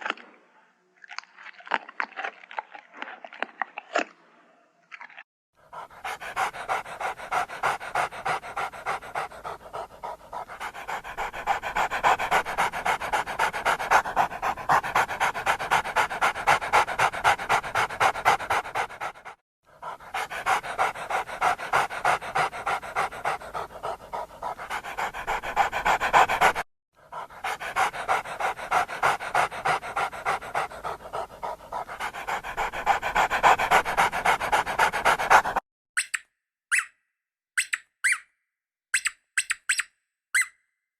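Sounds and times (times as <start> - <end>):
dog panting: 5.6 - 35.6.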